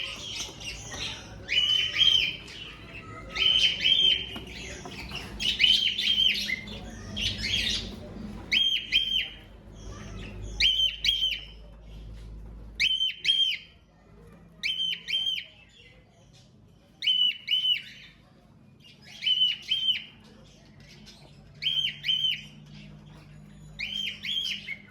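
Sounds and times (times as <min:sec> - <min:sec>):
cockatiels chirping: 0:00.0 - 0:24.9.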